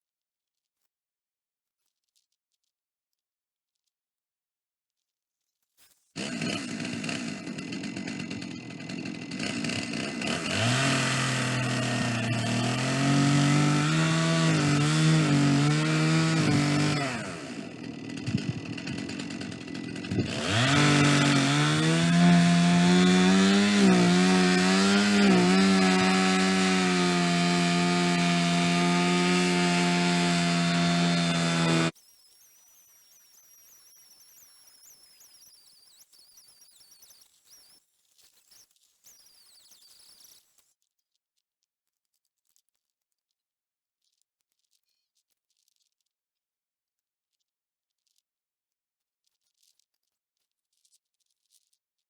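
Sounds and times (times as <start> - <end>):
chainsaw ripping wood: 6.2 - 32.0.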